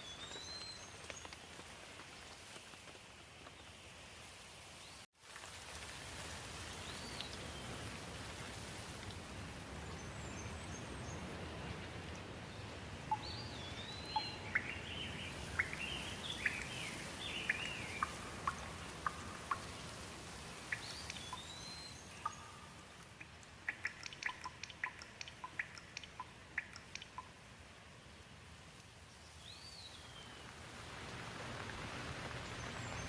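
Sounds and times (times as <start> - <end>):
steady rain: 0.0 - 33.0
water drips: 13.0 - 27.5.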